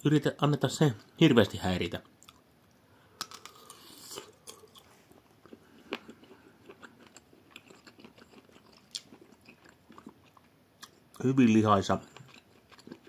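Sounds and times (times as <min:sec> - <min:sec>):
chewing with wet mouth clicks: 0:02.2 - 0:02.4, 0:03.2 - 0:11.3, 0:12.1 - 0:13.0
person biting a sausage: 0:03.2 - 0:04.9.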